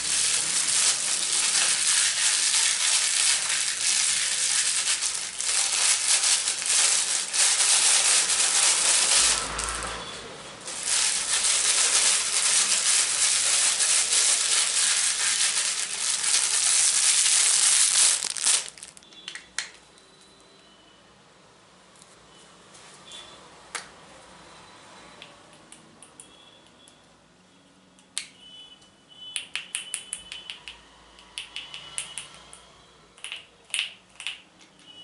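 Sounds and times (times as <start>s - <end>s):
material crinkling and crushing: 0.0s - 10.0s, 10.6s - 19.7s.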